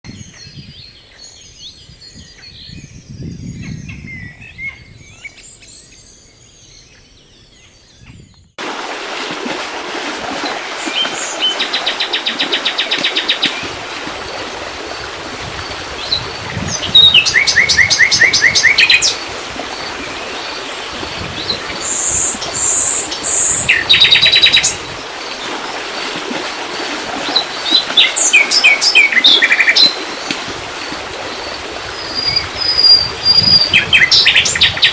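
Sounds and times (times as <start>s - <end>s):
songbirds chirping: 0.1s - 8.6s
bird singing rapid repeated notes: 10.4s - 13.8s, 14.9s - 25.4s, 27.3s - 30.0s.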